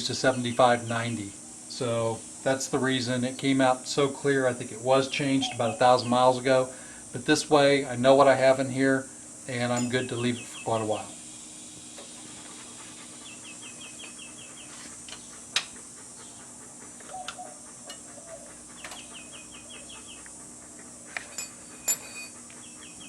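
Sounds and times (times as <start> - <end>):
steady hum: 0.0 - 23.0
bird chirping rapidly: 10.1 - 11.2, 12.6 - 15.5, 16.2 - 20.2.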